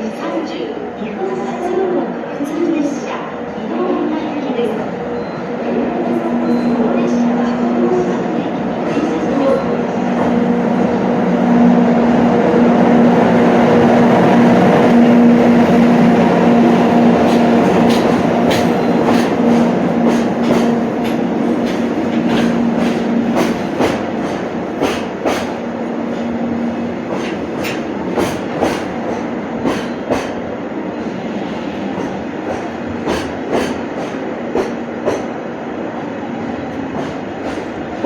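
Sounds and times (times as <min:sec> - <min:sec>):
electric train humming: 0:00.0 - 0:38.0
train wheels clacking over rail joints: 0:15.0 - 0:26.4, 0:27.0 - 0:30.4, 0:31.9 - 0:35.3, 0:36.7 - 0:38.0.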